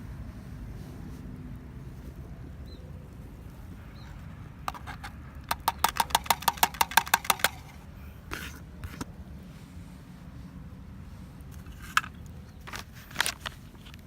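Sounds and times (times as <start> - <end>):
steady low rumble: 0.0 - 5.5.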